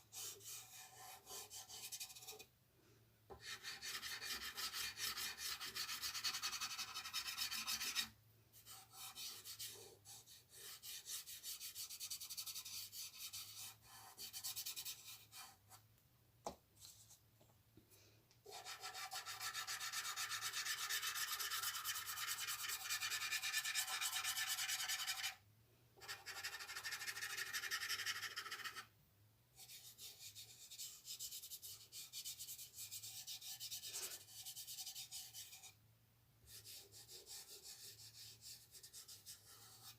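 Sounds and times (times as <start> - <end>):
pencil shading on paper: 0.1 - 2.5, 3.4 - 15.7, 18.5 - 25.4, 26.0 - 28.9, 36.5 - 39.9.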